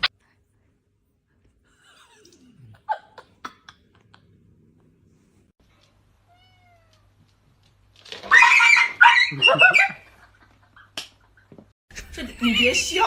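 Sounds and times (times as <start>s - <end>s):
cat meowing: 6.3s - 7.2s.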